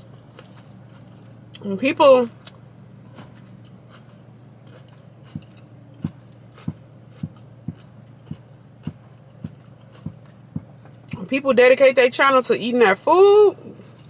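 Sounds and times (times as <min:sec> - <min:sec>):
person chewing food: 0:00.0 - 0:01.6, 0:02.4 - 0:11.2
car cabin low hum: 0:00.0 - 0:14.0.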